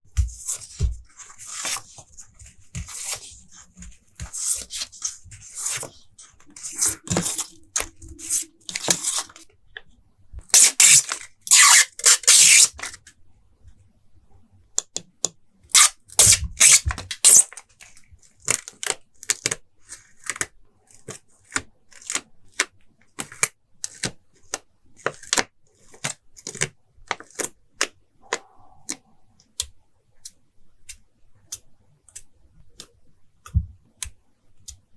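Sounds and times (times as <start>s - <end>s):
paper rustling: 0.1s - 9.4s
stickers and tape peeling: 10.6s - 13.0s, 15.8s - 17.5s.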